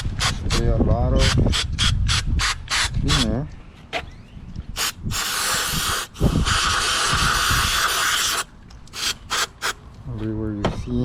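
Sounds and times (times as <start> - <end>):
aerosol can spraying: 4.8 - 9.8.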